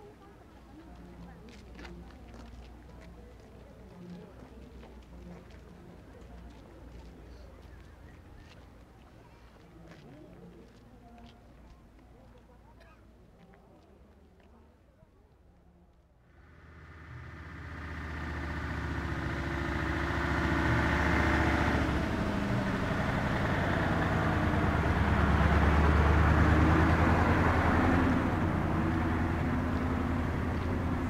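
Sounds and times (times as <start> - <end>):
vehicle engine running: 16.3 - 31.0.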